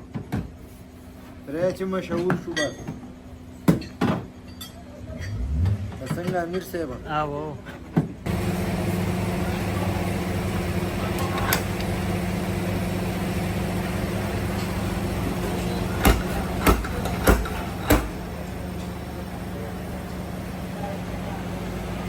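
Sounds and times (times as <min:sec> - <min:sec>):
workshop motor humming: 0:07.8 - 0:22.0
hammer knocking on metal: 0:16.0 - 0:18.2.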